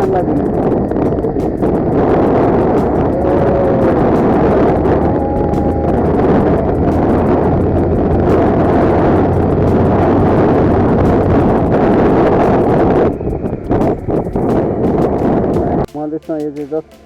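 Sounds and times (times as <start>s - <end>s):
motorcycle low hum: 0.0s - 15.9s
wind buffeting microphone: 0.0s - 15.9s.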